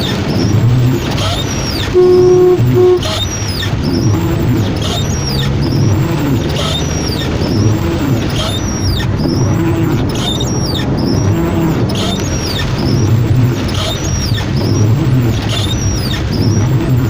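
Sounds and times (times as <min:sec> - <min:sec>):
car engine and tyres on wet road: 0:00.0 - 0:17.0
heavy rain: 0:00.0 - 0:17.0
short high squeak: 0:01.3 - 0:04.0.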